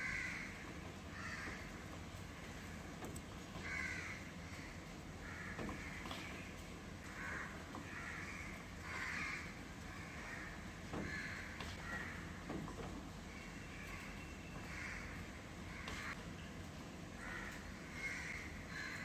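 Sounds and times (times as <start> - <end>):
crows cawing: 0.0 - 1.8, 3.6 - 6.4, 7.1 - 12.4, 13.3 - 16.2, 17.2 - 19.0
low background hum: 0.0 - 19.0.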